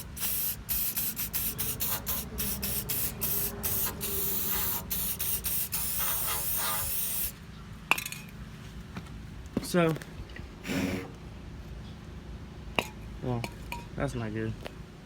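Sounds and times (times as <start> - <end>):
aerosol spray can hissing: 0.0 - 7.3.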